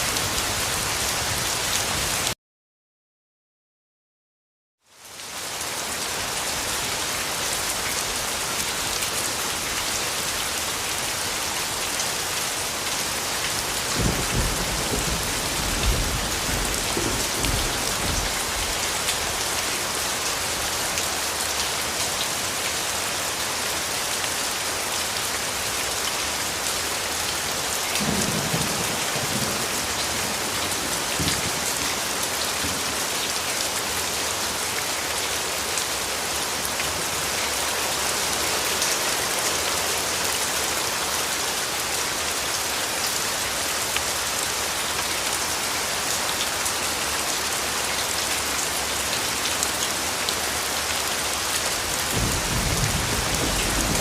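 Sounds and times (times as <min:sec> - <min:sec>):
heavy rain: 0:00.0 - 0:02.4, 0:04.8 - 0:54.0
distant thunder rumbles: 0:52.1 - 0:54.0.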